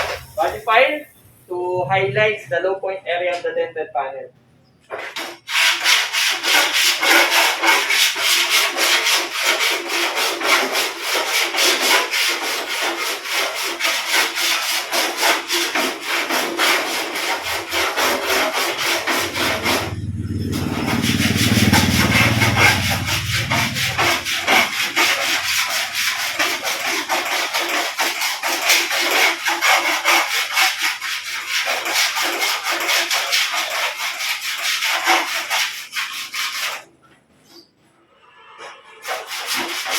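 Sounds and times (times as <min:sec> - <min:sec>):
file rasping across sheet metal: 0:04.9 - 0:39.9
low rumble: 0:19.2 - 0:24.3.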